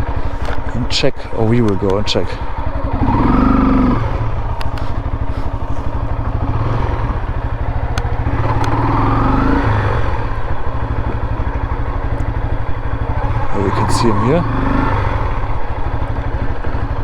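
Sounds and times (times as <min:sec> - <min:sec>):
motorcycle engine running: 0:00.0 - 0:17.0
sharp clicks: 0:07.8 - 0:09.0.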